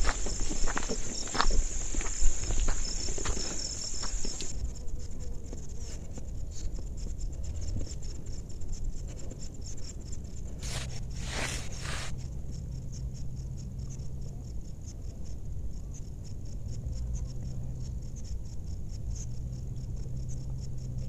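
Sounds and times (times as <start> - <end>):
footsteps on forest path: 0.0 - 4.5, 10.6 - 12.1
insects buzzing drone: 0.0 - 21.0
rustling swishes: 10.6 - 12.1.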